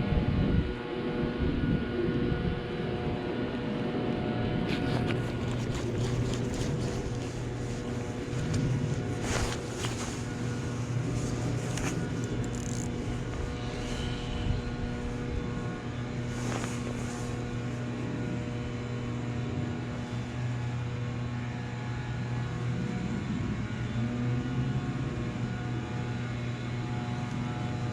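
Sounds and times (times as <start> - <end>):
boat motor humming: 4.2 - 20.0.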